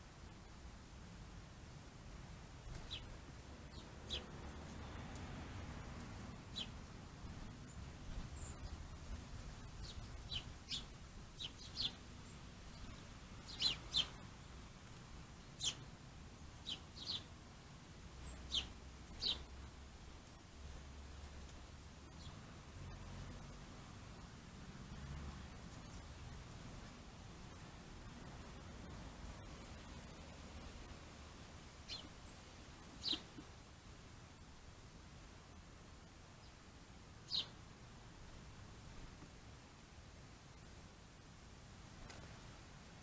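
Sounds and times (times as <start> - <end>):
birds chirping: 2.7 - 5.0, 6.5 - 6.8, 9.6 - 14.2, 16.6 - 17.3, 18.1 - 19.5, 31.8 - 33.4, 37.2 - 37.6.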